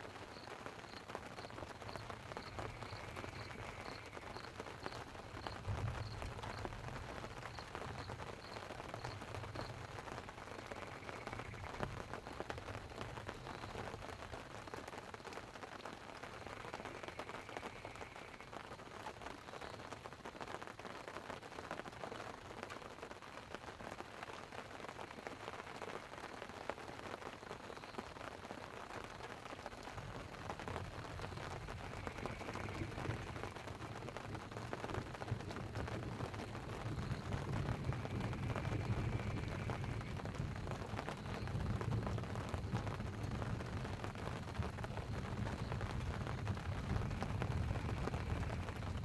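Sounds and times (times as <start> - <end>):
rain pattering on a tent: 0.0 - 49.0
thunder rolling: 30.2 - 49.0.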